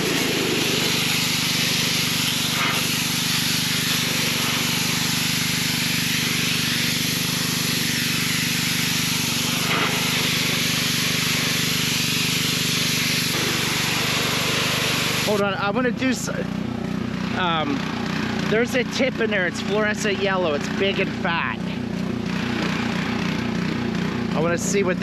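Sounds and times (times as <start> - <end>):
water jet hissing: 0.0 - 15.5
pressure washer engine running: 0.0 - 25.0.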